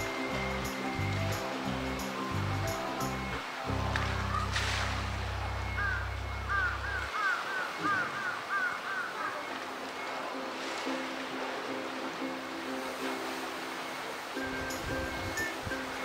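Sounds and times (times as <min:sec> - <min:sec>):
low background music note: 0:00.0 - 0:07.2
water splash: 0:03.4 - 0:06.0, 0:06.6 - 0:16.0
bird calling short notes: 0:05.6 - 0:09.6.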